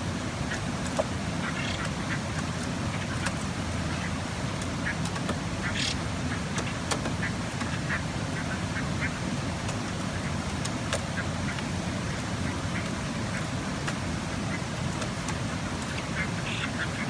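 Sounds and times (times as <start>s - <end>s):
songbird harsh calls: 15.8s - 17.0s.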